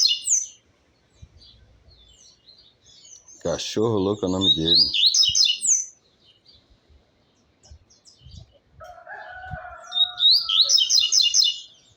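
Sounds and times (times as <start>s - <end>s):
rooster crowing: 8.8s - 11.4s.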